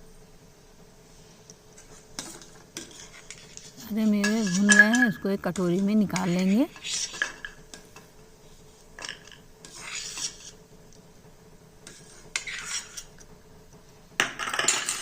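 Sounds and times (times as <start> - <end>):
spatula scraping a pan: 1.7 - 10.8, 11.8 - 13.3, 14.2 - 15.0.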